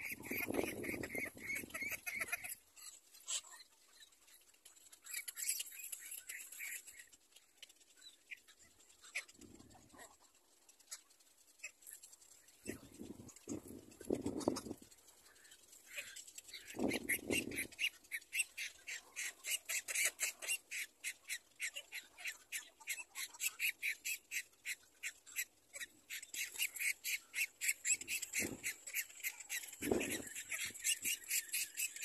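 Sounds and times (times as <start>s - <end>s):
high clicking bird calls: 10.8s - 32.0s.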